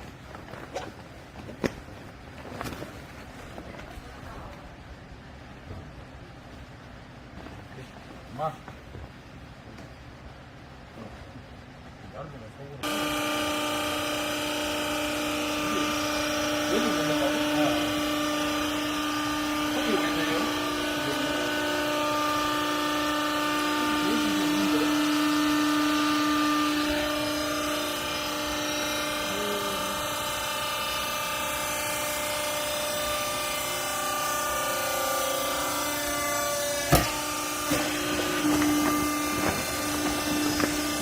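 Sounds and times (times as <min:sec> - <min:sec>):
pump motor whining: 0:12.8 - 0:41.0.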